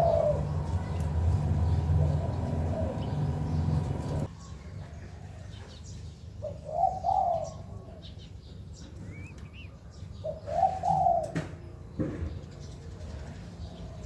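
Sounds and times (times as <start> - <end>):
dove cooing: 0.0 - 4.3, 6.4 - 7.8, 10.2 - 11.4
low steady hum: 0.0 - 4.3
faint small bird chirps: 8.8 - 10.5.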